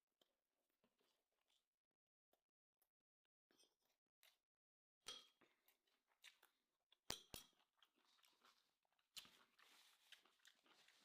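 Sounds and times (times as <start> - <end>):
clicks and rustles of eating: 5.1 - 11.0.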